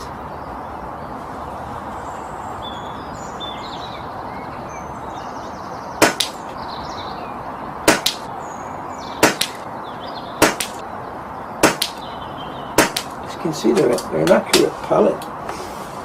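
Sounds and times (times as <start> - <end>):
birds chirping faintly: 0.0 - 16.0
air rifle shots: 6.0 - 6.4, 7.9 - 8.3, 9.2 - 9.6, 10.4 - 10.8, 11.6 - 12.0, 12.8 - 13.2.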